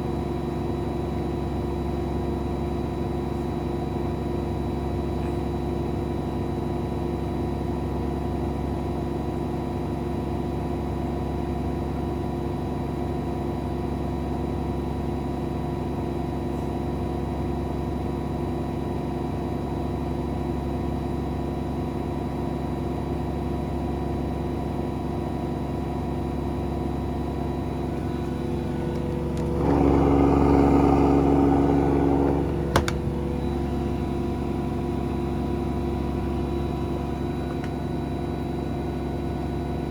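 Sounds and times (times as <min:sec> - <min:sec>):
washing machine motor whine: 0:00.0 - 0:39.9.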